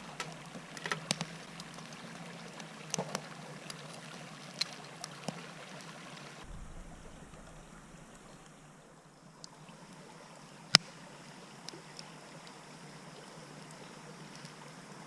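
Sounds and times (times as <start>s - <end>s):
wood fire hissing and crackling: 0.0s - 15.0s
sharp loud pop: 6.4s - 8.8s.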